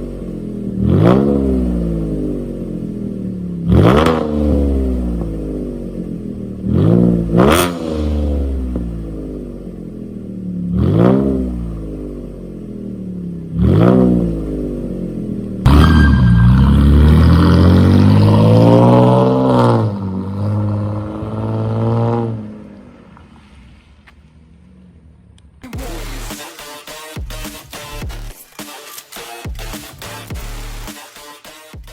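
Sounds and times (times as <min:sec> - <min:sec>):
car engine revving through exhaust: 0:00.0 - 0:15.9, 0:16.5 - 0:22.7.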